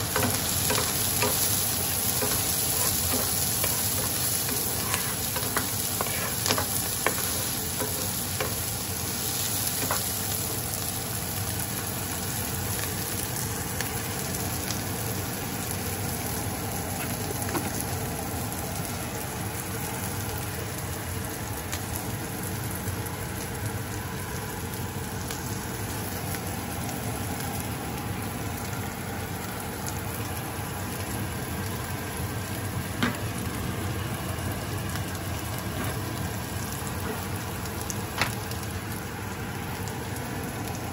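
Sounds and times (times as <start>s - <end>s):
onion sizzling in oil: 0.0s - 40.9s
wooden spoon scraping a pan: 0.2s - 8.7s.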